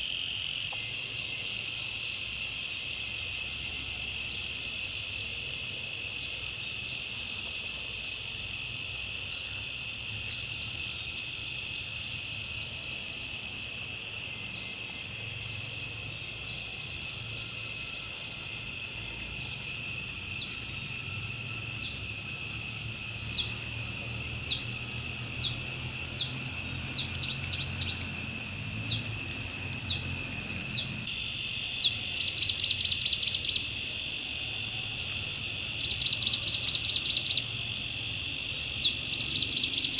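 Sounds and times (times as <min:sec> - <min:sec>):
insects droning: 0:00.0 - 0:39.9
bird chirping downward slides: 0:23.2 - 0:31.1, 0:31.8 - 0:33.7, 0:35.8 - 0:37.6, 0:38.8 - 0:39.9.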